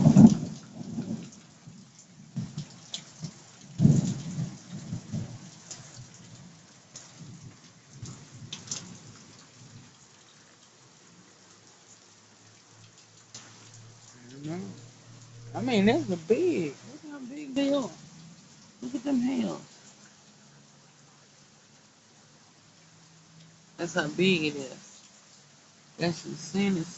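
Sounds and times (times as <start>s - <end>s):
rain and hail pouring: 0.0s - 26.9s
sharp hail hits: 3.6s - 6.1s.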